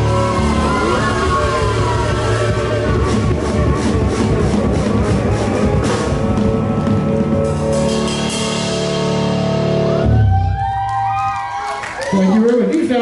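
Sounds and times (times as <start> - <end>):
drum strokes: 0.0 - 10.8
live band playing: 0.0 - 12.0.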